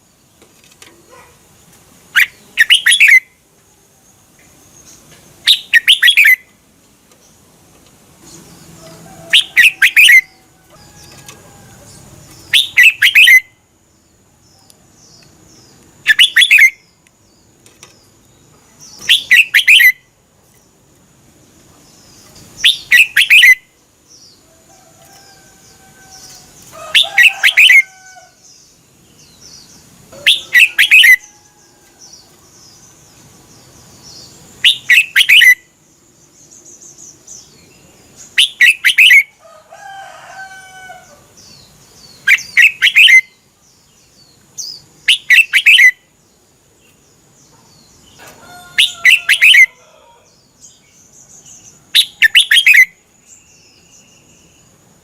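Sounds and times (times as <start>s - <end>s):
bulbul singing quick phrases: 2.1s - 3.3s, 5.4s - 6.5s, 12.4s - 13.6s, 16.0s - 17.0s, 18.9s - 20.1s, 22.6s - 23.7s, 29.5s - 31.3s, 34.0s - 35.6s, 38.3s - 39.3s, 42.2s - 43.4s, 44.6s - 46.0s, 52.0s - 53.0s
low bird calls: 30.1s - 31.9s.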